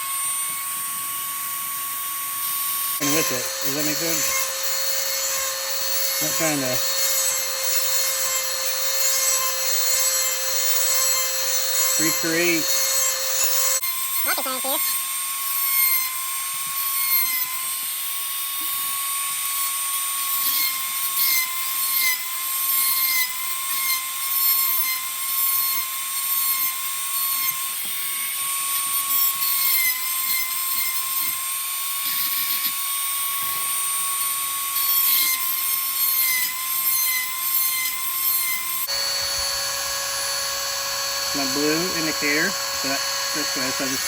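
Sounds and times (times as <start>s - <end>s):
grinding wheel whining: 0.0s - 16.0s, 38.6s - 44.0s.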